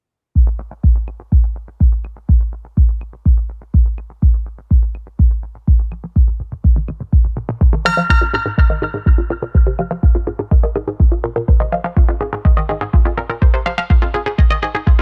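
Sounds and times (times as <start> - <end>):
electronic background music: 0.4 - 15.0
heavy kick drum beat: 0.4 - 15.0
ticking hi-hats: 0.4 - 15.0
sustained synth chords: 7.8 - 15.0.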